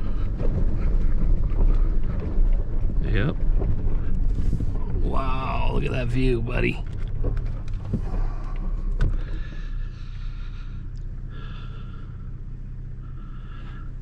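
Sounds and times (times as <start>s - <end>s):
engine hum inside vehicle cab: 0.0s - 14.0s
faint breathing: 7.9s - 14.0s.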